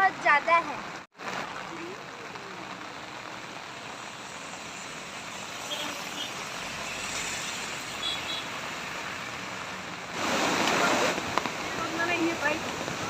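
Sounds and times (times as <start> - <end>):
heavy rain hissing: 0.0 - 13.0
vehicle on wet road: 0.0 - 13.0.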